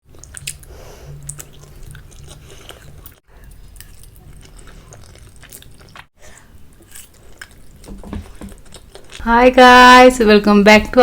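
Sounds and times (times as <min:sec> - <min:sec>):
chewing noodles: 0:00.0 - 0:09.3.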